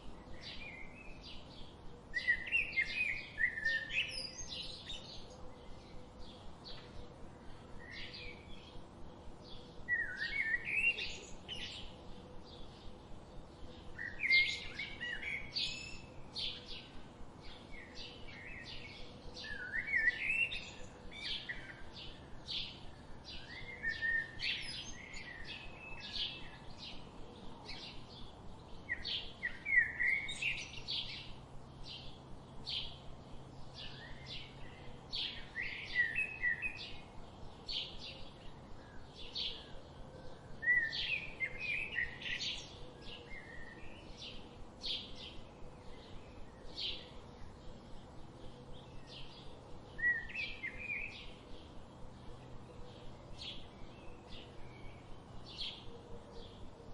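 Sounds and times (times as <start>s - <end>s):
songbirds chirping: 0.0s - 56.9s.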